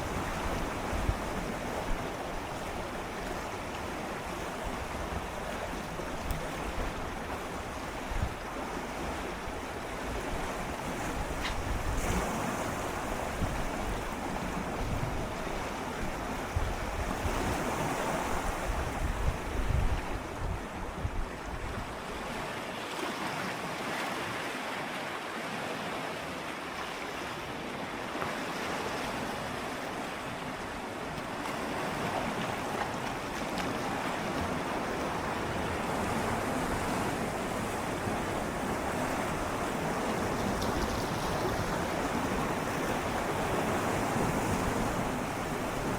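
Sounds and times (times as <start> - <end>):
wind rumble on microphone: 0.0 - 22.4
sea waves lapping on rocks: 21.7 - 45.9.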